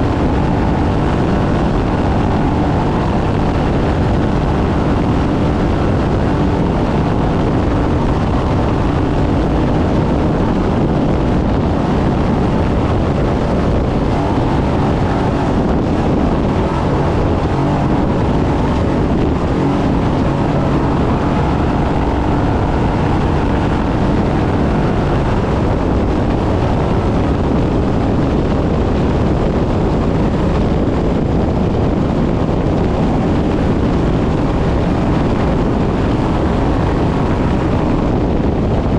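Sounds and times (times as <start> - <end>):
truck engine under load: 0.0 - 29.4
wind and terrain roar: 0.0 - 38.9.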